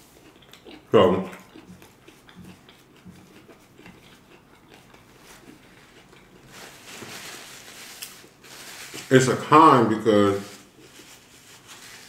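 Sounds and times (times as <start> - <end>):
chewing food: 0.0 - 7.0
wet mouth clicks: 0.2 - 6.3
paper napkin rustling: 5.2 - 12.0.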